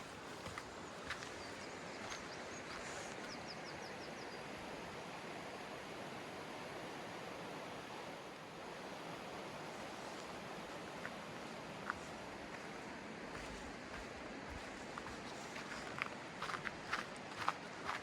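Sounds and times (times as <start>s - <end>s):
footsteps on rocks: 0.0s - 3.4s, 13.4s - 18.0s
river rushing: 2.4s - 18.0s.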